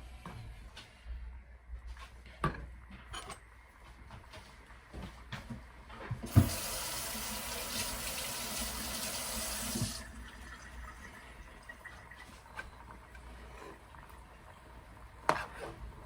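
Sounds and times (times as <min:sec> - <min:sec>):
tap running water into sink: 0:04.9 - 0:12.4.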